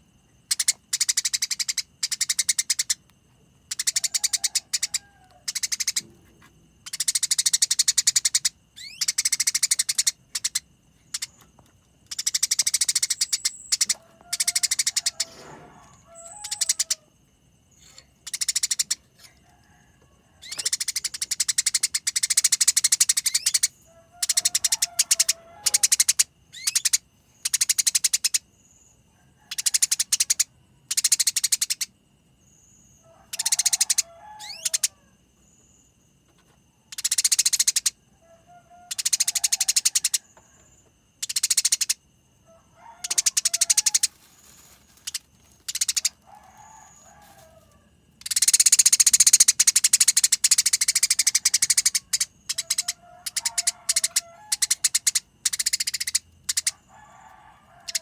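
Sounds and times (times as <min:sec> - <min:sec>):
songbird harsh rolling trills: 0:12.1 - 0:17.1.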